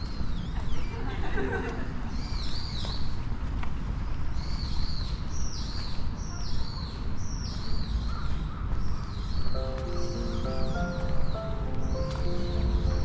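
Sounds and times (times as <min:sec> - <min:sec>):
steady low rumble: 0:07.8 - 0:13.0.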